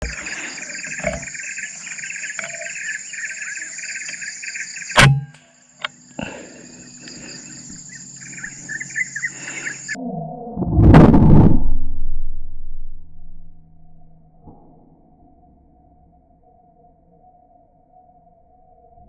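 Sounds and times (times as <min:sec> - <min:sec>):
crickets and insects chirring: 0:00.0 - 0:10.0
air rifle shot: 0:05.0 - 0:05.3.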